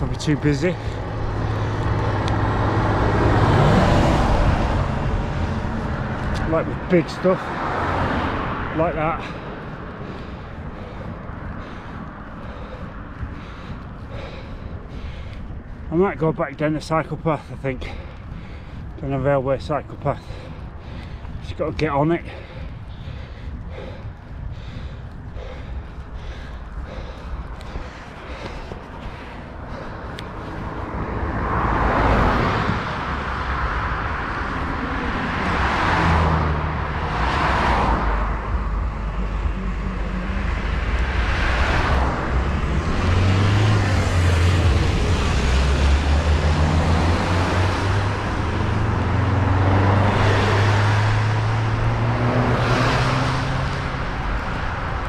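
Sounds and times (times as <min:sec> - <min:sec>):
cars passing: 0:00.0 - 0:55.0
low engine drone: 0:09.2 - 0:15.8, 0:22.3 - 0:55.0.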